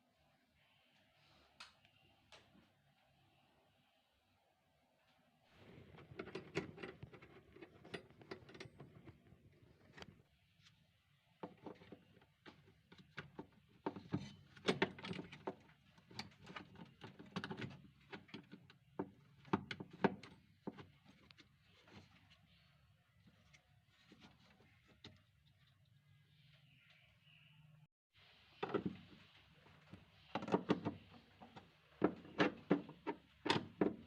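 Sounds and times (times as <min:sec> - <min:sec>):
hard objects knocking and rattling: 0:11.4 - 0:22.0, 0:30.4 - 0:34.0.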